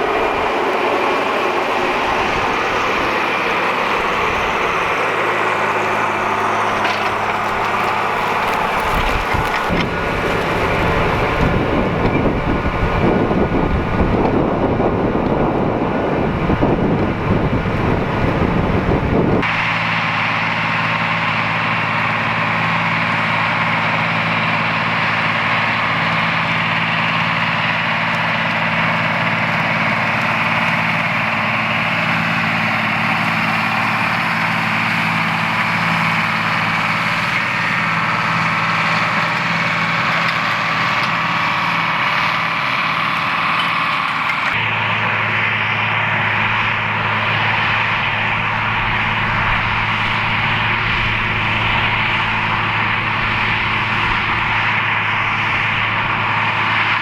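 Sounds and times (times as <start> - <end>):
tractor diesel engine running: 0.0 - 57.0
wind noise on microphone: 8.6 - 19.5, 46.2 - 57.0.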